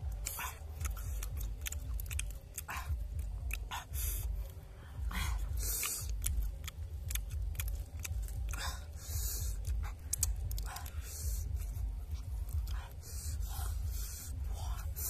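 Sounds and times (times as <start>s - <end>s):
chewing: 0.0s - 4.6s, 5.3s - 15.0s
low rumble: 0.0s - 15.0s
crab shell cracking: 5.8s - 8.6s, 9.6s - 10.9s.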